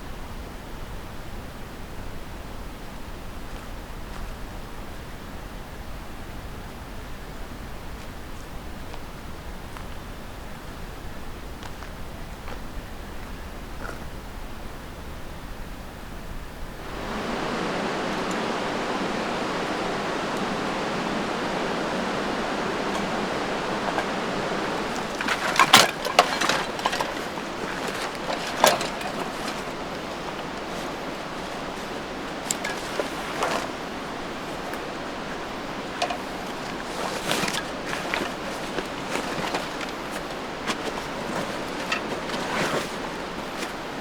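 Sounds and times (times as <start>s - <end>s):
steady rushing noise: 16.8s - 44.0s.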